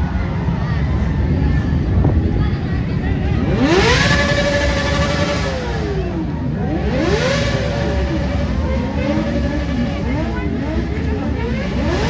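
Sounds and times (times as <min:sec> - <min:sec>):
vehicle engine revving: 0:02.9 - 0:12.0.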